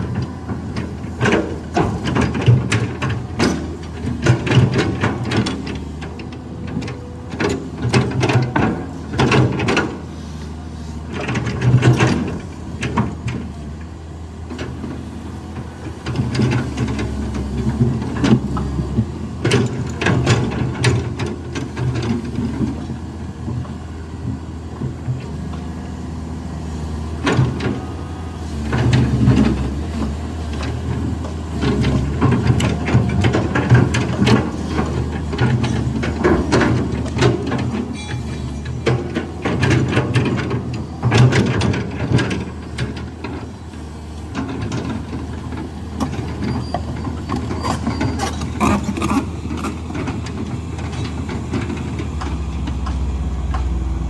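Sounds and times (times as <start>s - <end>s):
excavator diesel engine under load: 0.0s - 54.0s
bucket clanking on metal and rock: 31.7s - 43.4s, 44.4s - 53.8s.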